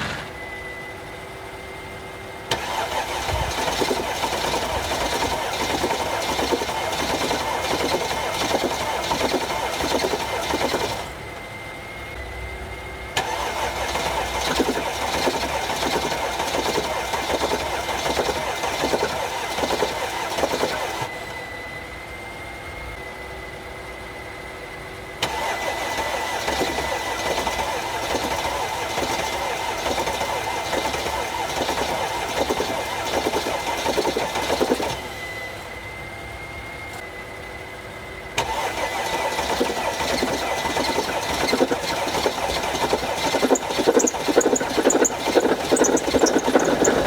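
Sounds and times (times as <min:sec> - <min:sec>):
diesel engine starter cranking: 0:00.0 - 0:00.7, 0:02.5 - 0:11.3, 0:13.2 - 0:21.1, 0:25.2 - 0:35.3, 0:38.4 - 0:47.0.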